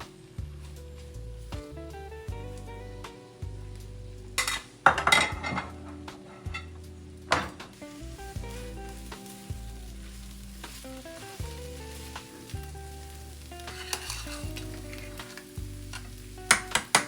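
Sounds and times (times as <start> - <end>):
soft background music: 0.0 - 17.0
food sizzling in a pan: 4.2 - 17.0
utensil clicking against pan: 13.6 - 17.0.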